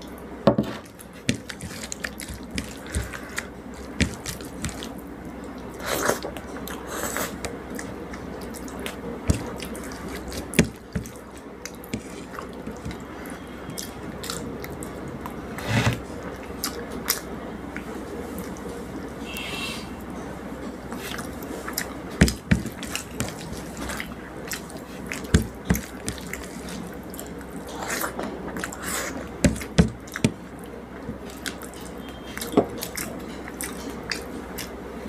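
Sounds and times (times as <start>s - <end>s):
person chewing and lip-smacking: 20.9s - 34.8s.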